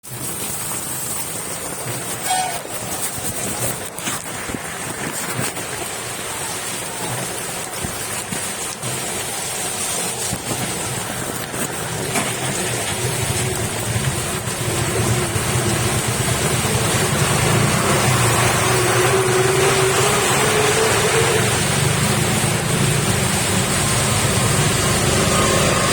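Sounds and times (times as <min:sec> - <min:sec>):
heavy rain pouring: 0:00.0 - 0:25.9
vehicle engine: 0:10.0 - 0:25.9.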